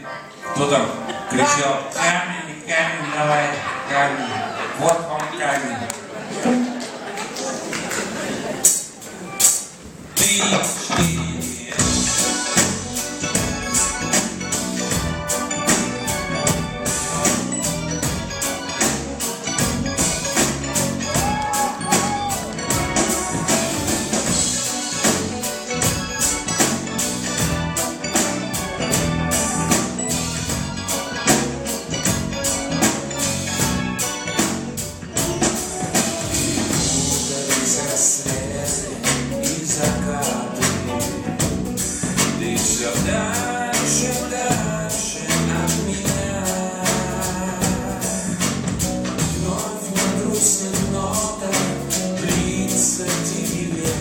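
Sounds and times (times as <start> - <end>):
drums with cymbal strokes: 8.6 - 10.4, 11.0 - 54.0
live pop band playing: 8.6 - 54.0
bass line: 11.0 - 54.0
person singing: 15.5 - 54.0.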